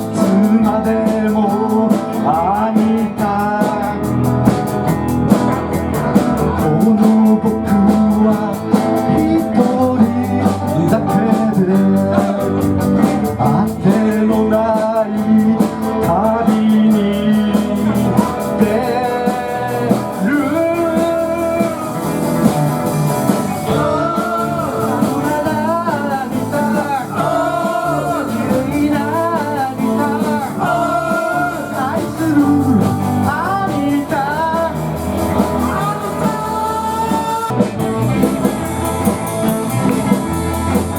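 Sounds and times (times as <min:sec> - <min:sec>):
live band music: 0:00.0 - 0:40.9
guitar wavering lead melody: 0:20.5 - 0:40.9.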